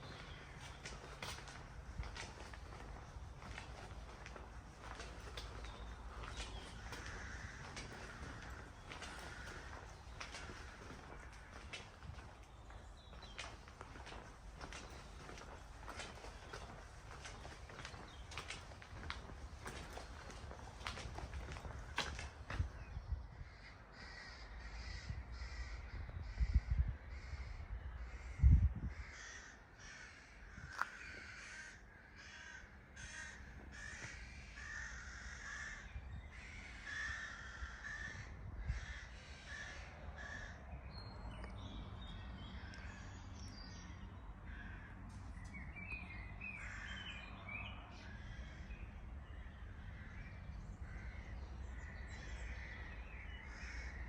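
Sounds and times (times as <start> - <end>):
crows cawing: 0.0 - 22.8, 23.4 - 40.6, 44.5 - 45.2, 46.5 - 54.0.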